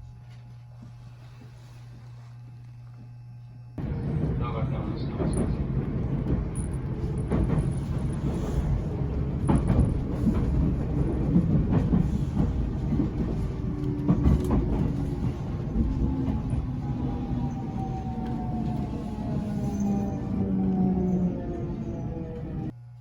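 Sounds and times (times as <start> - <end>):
wheels knocking: 3.8 - 17.2
electric train rumbling on track: 3.8 - 22.8.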